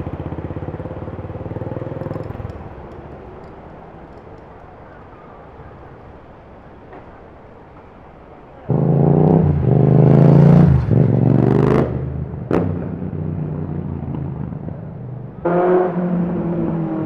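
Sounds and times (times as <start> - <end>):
motorcycle engine revving: 0.0 - 3.6, 8.7 - 17.0
low street rumble: 0.0 - 17.0.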